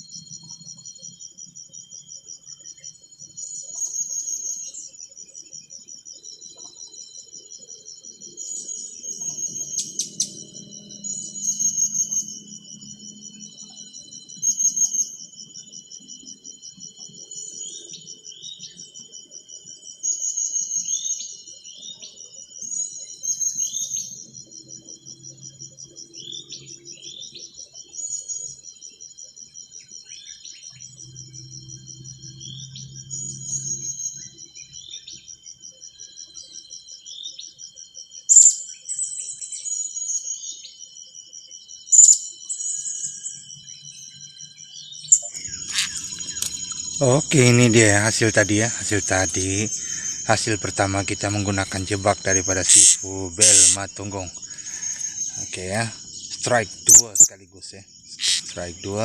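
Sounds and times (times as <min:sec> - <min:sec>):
high pulsing insect trill: 0:00.0 - 0:59.0
bird chirps: 0:08.2 - 0:12.5, 0:20.0 - 0:24.8, 0:38.3 - 0:40.8, 0:41.9 - 0:59.0.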